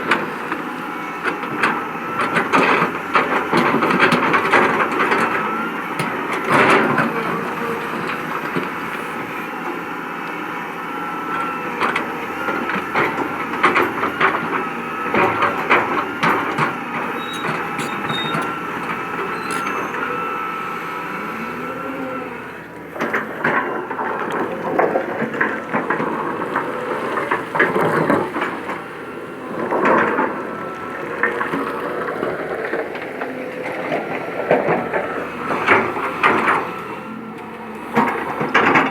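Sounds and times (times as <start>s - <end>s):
heavy machine engine under load: 0.0s - 38.9s.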